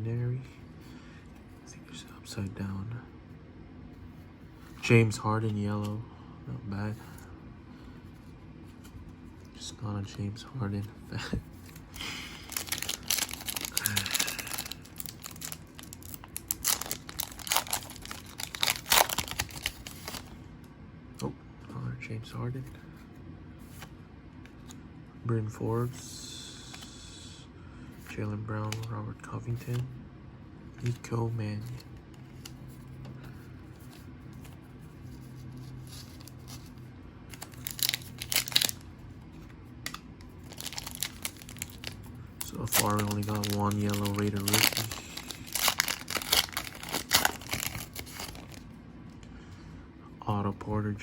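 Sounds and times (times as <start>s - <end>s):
plastic wrapper tearing and crinkling: 11.8s - 20.3s, 37.3s - 38.8s, 39.9s - 48.6s.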